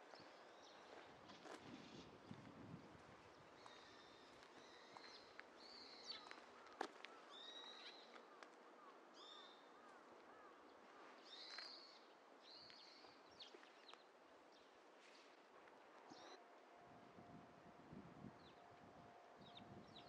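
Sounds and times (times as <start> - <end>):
small birds chirping: 3.2 - 14.7.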